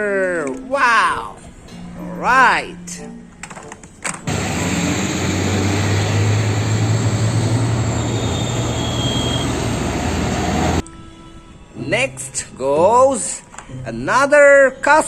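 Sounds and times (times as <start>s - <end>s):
heavy engine droning: 4.2s - 10.8s
loud rushing noise: 4.3s - 10.8s.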